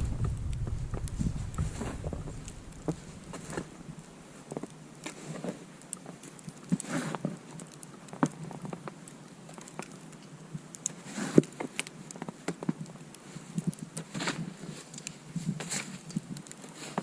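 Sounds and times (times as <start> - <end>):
footsteps crunching in deep snow: 0.0 - 3.7.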